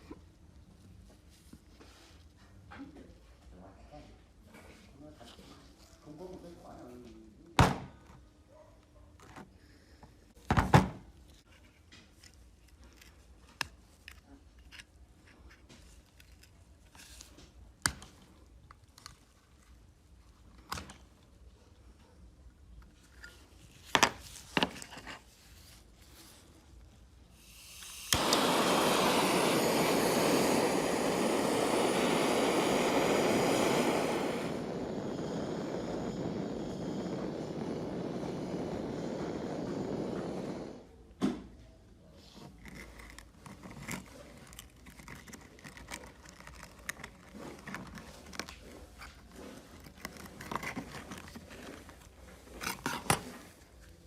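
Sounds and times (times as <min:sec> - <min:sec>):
workshop power tool running: 0:27.8 - 0:40.9.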